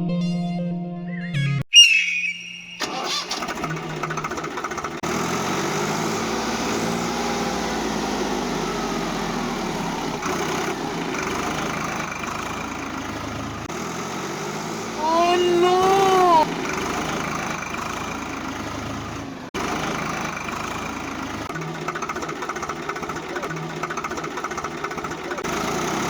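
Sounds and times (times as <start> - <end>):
tractor engine running: 2.7 - 26.0.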